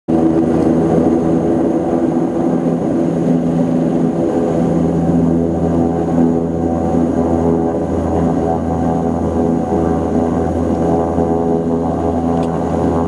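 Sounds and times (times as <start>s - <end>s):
turboprop propeller drone: 0.1s - 13.0s.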